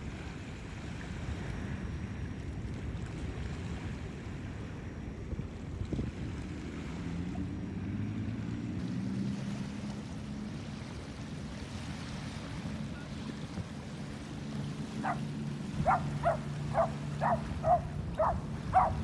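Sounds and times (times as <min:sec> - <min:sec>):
ocean surf on beach: 0:08.1 - 0:19.0
wind on microphone: 0:11.5 - 0:19.0.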